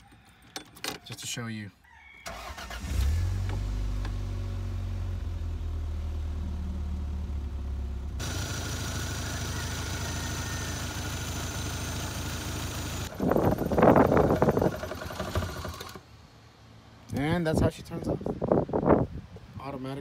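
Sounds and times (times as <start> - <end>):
car engine idling: 2.4 - 15.7.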